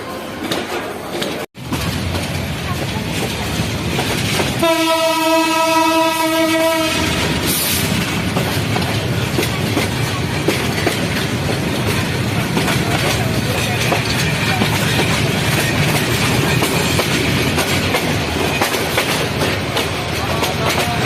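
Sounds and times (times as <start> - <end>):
train rumbling on rails: 0.0 - 21.0
train horn: 4.6 - 7.6.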